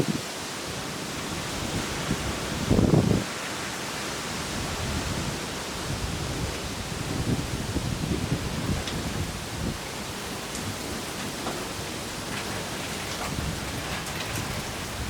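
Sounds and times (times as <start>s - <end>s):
heavy rain: 0.0s - 15.0s
storm wind: 0.0s - 15.0s
raindrops ticking close by: 8.2s - 15.0s.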